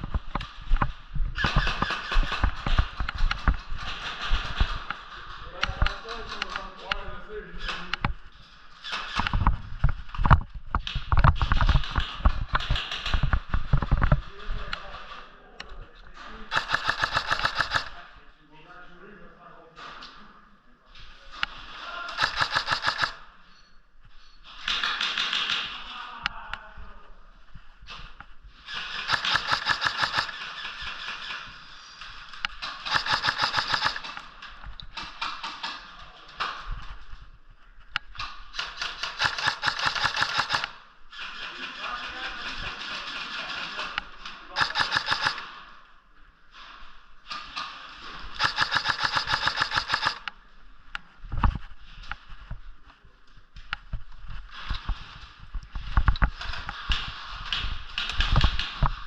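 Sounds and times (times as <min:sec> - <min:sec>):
airsoft gun automatic bursts: 0:01.4 - 0:06.6, 0:16.5 - 0:18.0, 0:22.1 - 0:23.3, 0:28.6 - 0:34.3, 0:38.5 - 0:45.6, 0:48.3 - 0:50.3.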